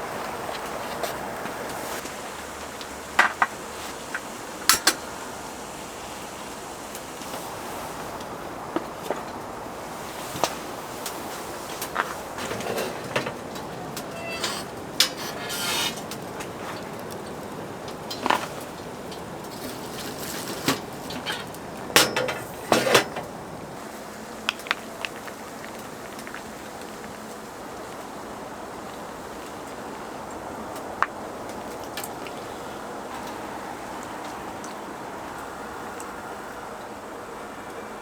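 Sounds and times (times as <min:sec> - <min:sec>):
steady hiss: 0:00.0 - 0:38.0
cookware and utensils clinking: 0:12.4 - 0:17.1, 0:18.0 - 0:23.4.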